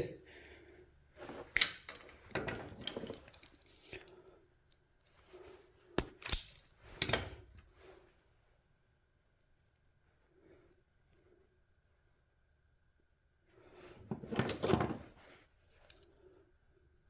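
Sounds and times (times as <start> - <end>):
rustling and scraping: 1.2 - 3.6, 13.6 - 16.0.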